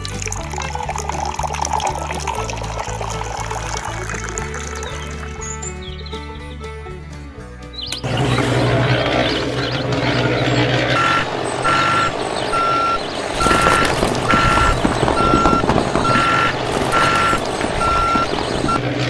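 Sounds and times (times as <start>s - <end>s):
continuous noisy rumble: 0.0s - 19.0s
vehicle reversing alarm beeping: 8.0s - 19.0s.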